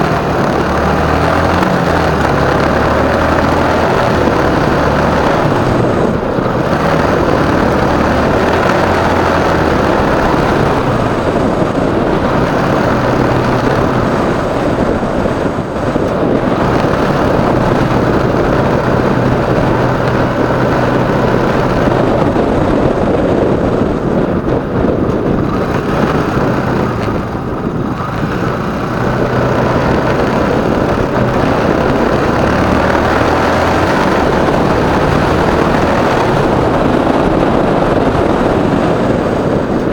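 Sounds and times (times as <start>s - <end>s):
motorcycle engine humming: 0.0s - 39.9s
steady rushing noise: 0.0s - 39.9s.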